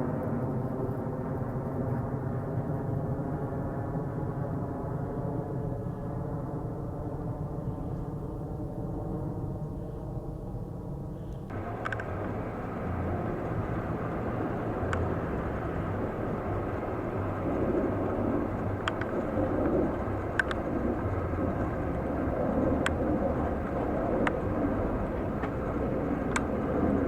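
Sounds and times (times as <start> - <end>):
jet engines rumbling: 0.0 - 27.0
faint sharp clicks: 11.3 - 26.8.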